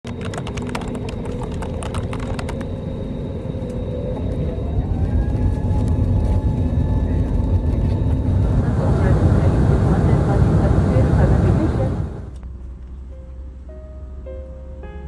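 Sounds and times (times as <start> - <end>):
sharp clicks: 0.1 - 2.7
vehicle engine rumbling: 0.2 - 13.7.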